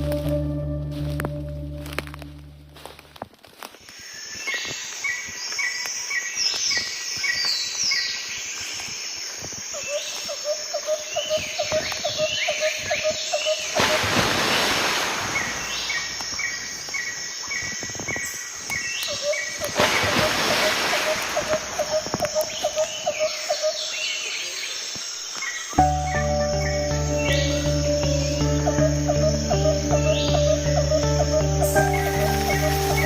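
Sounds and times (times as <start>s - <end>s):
birds singing and chirping: 3.9s - 14.7s, 15.3s - 33.0s
low repeated bird notes: 9.8s - 24.6s, 25.7s - 33.0s.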